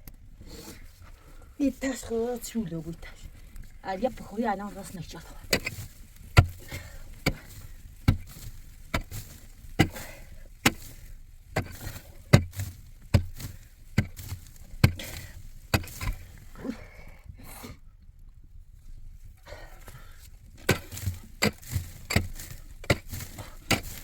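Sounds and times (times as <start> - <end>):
heavy hand tool chopping thuds: 5.5 - 16.3, 20.6 - 24.0.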